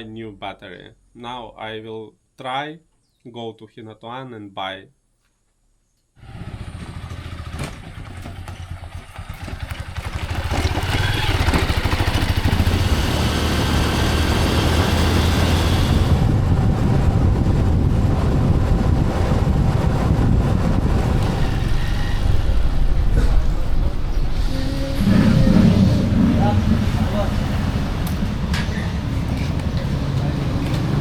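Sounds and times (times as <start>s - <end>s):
motorcycle engine running: 6.2s - 21.4s.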